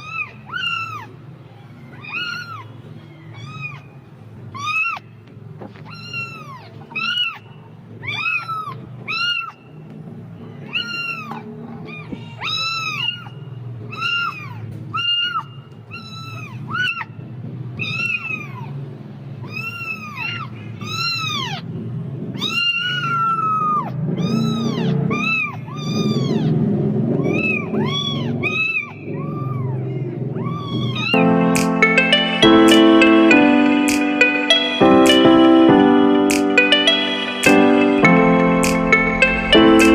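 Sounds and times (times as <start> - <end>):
kitten meowing: 0.0 - 1.2, 1.9 - 3.9, 4.5 - 5.0, 5.8 - 7.4, 8.0 - 9.6, 10.7 - 13.3, 13.9 - 17.1, 17.8 - 18.7, 19.4 - 21.7, 22.4 - 29.8, 30.4 - 31.2
piano music: 31.2 - 39.9.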